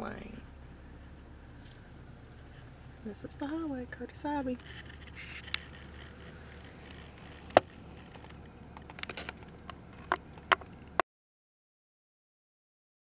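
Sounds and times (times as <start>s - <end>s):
vehicle interior rumble: 0.0s - 11.0s
sharp clicks and knocks: 4.6s - 11.0s.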